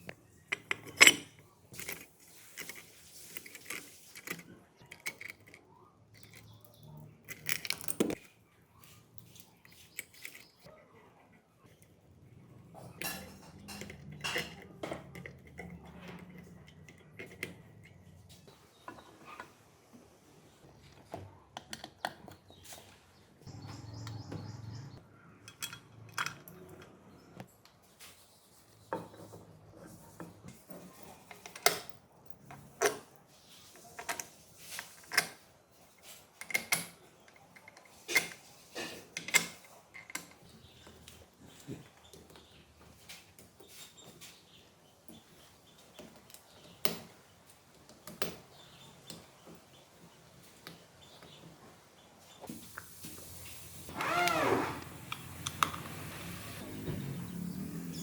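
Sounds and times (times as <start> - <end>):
metal tools clinking: 0.5 - 5.6, 6.2 - 8.3, 9.6 - 10.7, 12.9 - 18.1, 25.4 - 27.0.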